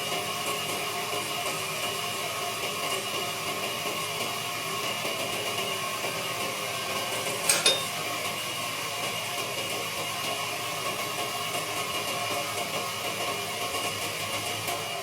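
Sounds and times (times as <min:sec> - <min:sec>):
sharp metallic clinks: 0:07.5 - 0:07.9.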